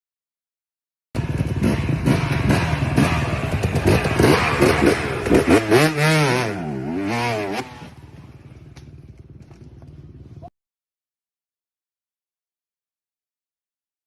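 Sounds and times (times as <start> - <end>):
dirt bike engine revving: 1.2 - 10.2.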